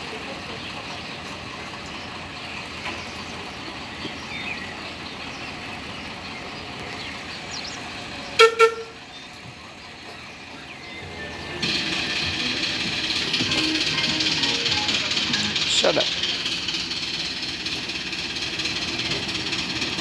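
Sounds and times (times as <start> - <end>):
miniature locomotive horn toots: 8.4 - 9.1.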